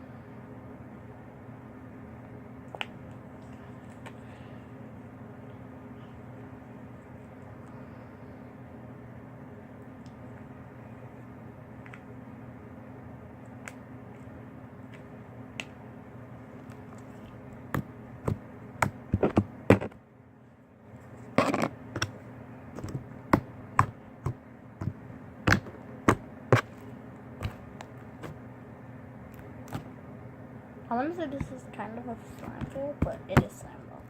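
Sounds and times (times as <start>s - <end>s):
low room hum: 0.0s - 34.0s
slime squishing with pops: 22.8s - 26.8s, 27.4s - 28.4s, 29.3s - 29.9s.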